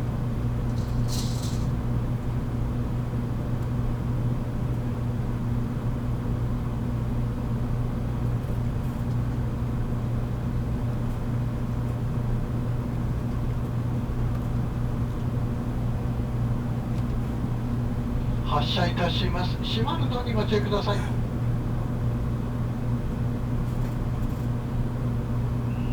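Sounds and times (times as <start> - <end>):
electric train humming: 16.6 - 22.0.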